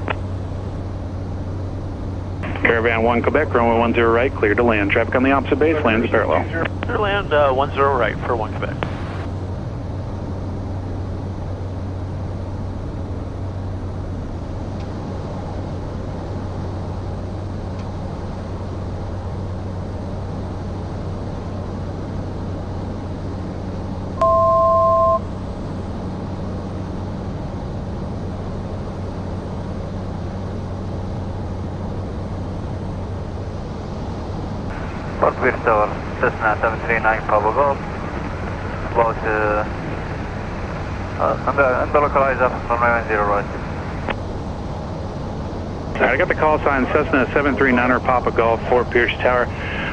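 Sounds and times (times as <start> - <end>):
propeller plane engine droning: 0.0 - 49.9
two-pitch alert tone: 24.2 - 25.3.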